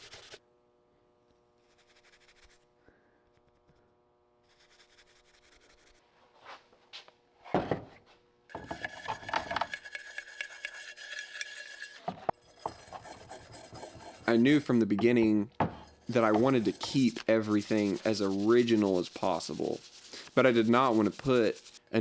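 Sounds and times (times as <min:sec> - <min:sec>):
steel wool scrubbing metal: 0:08.5 - 0:21.9
faint scratching: 0:08.8 - 0:15.2, 0:15.8 - 0:21.8.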